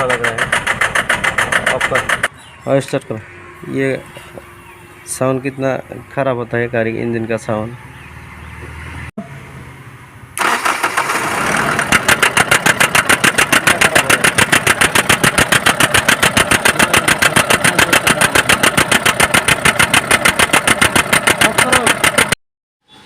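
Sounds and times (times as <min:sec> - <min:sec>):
diesel engine cranking and knocking: 0:00.0 - 0:02.3, 0:10.4 - 0:22.4.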